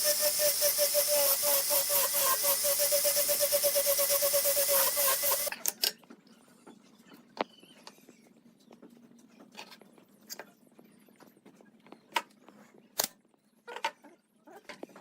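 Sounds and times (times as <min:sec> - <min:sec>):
power tool running: 0:00.0 - 0:05.5.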